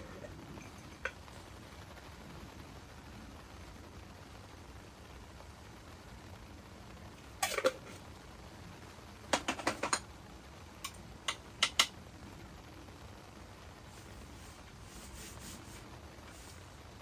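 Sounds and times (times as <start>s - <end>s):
low steady hiss: 0.0s - 17.0s.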